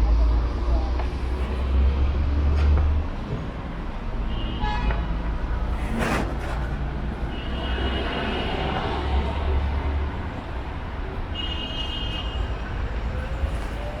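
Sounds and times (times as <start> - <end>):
road traffic: 0.0 - 14.0
vehicle horn beep: 4.3 - 5.1, 11.4 - 12.5.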